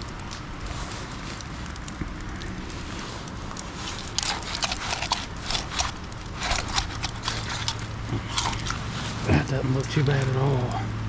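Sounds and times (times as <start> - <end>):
knife crunching through fish bones: 2.8 - 9.3.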